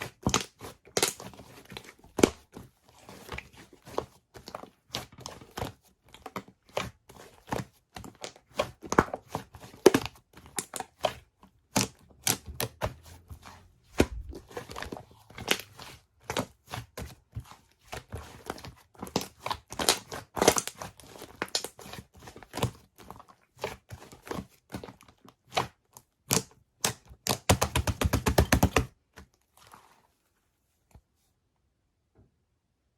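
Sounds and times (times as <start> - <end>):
slime being squished by hand: 7.6 - 29.0.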